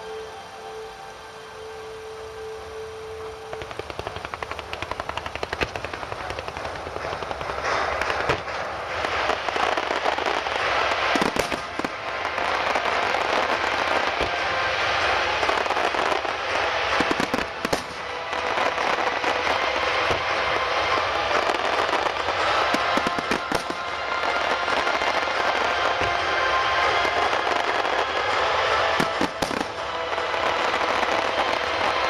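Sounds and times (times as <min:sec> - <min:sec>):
fireworks crackling: 0:00.0 - 0:32.0
loud firework bursts: 0:03.3 - 0:32.0.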